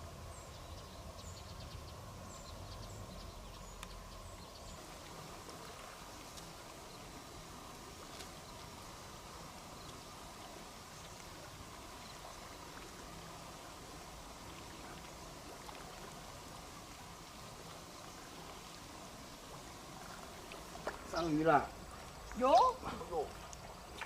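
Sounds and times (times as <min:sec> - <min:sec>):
steady low hiss: 0:00.0 - 0:24.0
faint clicks: 0:03.7 - 0:04.0.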